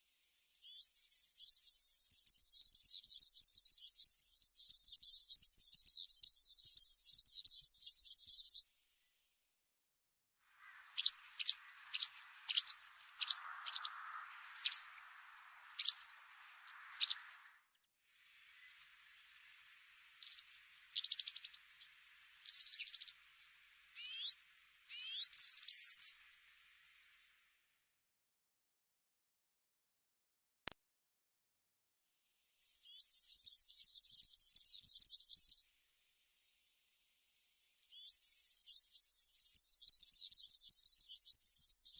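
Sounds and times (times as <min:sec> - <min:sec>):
faint steady hiss: 0:00.0 - 0:09.6, 0:10.4 - 0:28.0, 0:32.1 - 0:41.9
songbird twittering: 0:00.5 - 0:08.7, 0:10.6 - 0:17.8, 0:18.5 - 0:27.5, 0:32.6 - 0:35.6, 0:37.8 - 0:41.9
small bird high call notes: 0:10.6 - 0:17.5, 0:20.1 - 0:27.4.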